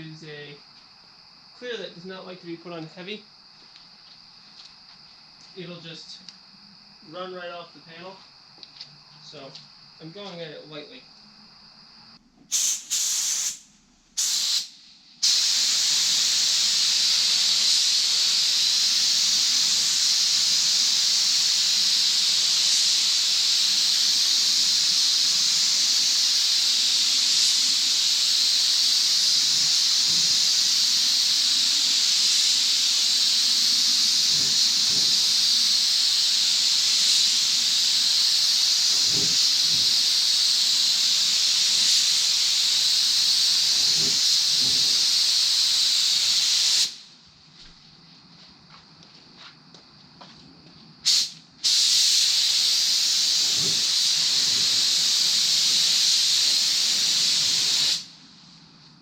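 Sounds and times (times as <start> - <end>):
paint spray gun hissing: 12.5 - 47.1, 51.0 - 58.3.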